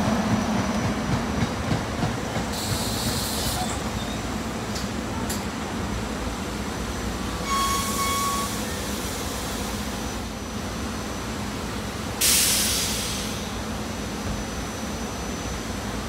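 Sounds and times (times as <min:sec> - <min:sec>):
electric train rumbling past: 0:00.0 - 0:16.0
loud hiss of air: 0:02.4 - 0:03.9, 0:12.1 - 0:15.3
high squeal: 0:07.4 - 0:08.8.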